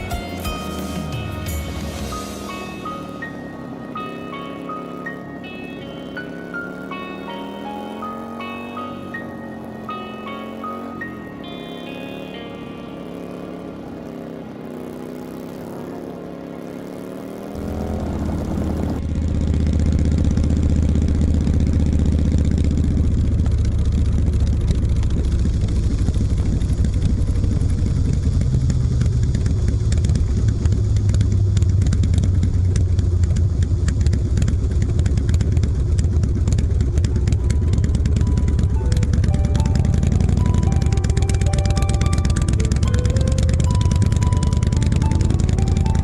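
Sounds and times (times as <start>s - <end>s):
background music: 0.0s - 14.3s, 36.9s - 46.0s
motorcycle engine running: 0.0s - 46.0s.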